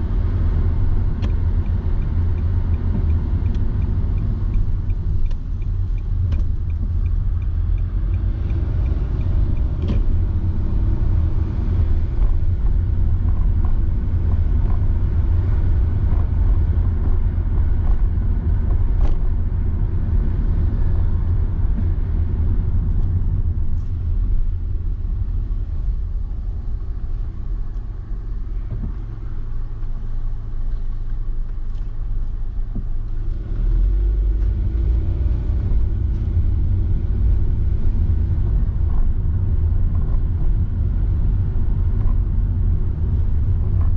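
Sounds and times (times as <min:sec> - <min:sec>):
tyre and engine rumble: 0:00.0 - 0:43.9
light regular ticking: 0:01.1 - 0:09.8.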